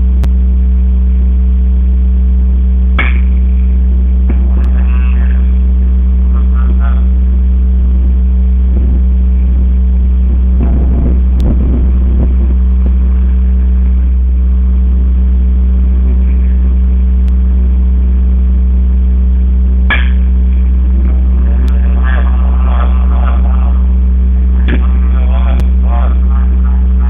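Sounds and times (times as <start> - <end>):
loud steady low hum: 0.0 - 27.0
sharp knock: 3.0 - 3.4, 19.9 - 20.3.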